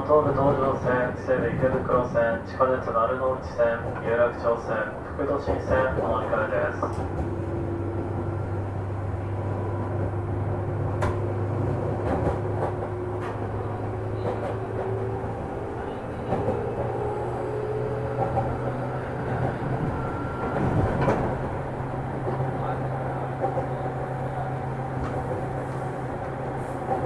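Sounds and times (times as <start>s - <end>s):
train motor and gear hum: 0.0s - 27.0s.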